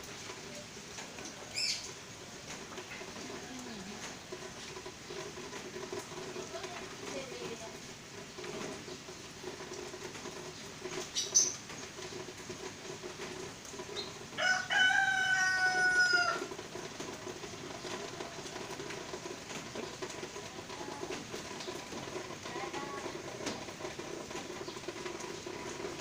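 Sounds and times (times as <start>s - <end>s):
rooster crowing: 14.4s - 16.6s.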